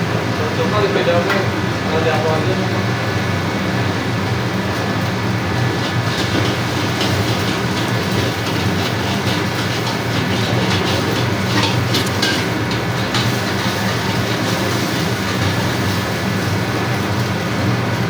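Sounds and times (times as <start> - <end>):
steady low hum: 2.9 - 18.0
metal spatula scraping a wok: 5.5 - 17.2.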